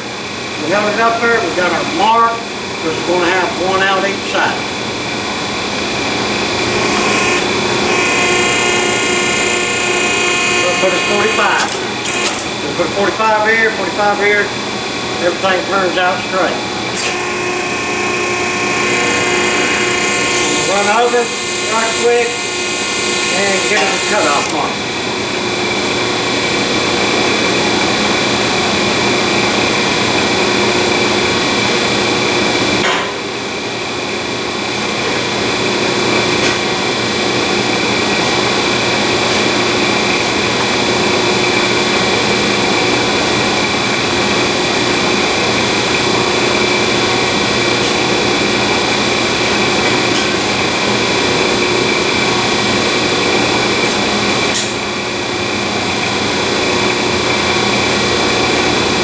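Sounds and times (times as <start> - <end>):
power tool cutting steel tubing: 5.8 - 12.6, 16.8 - 27.6, 41.1 - 55.2.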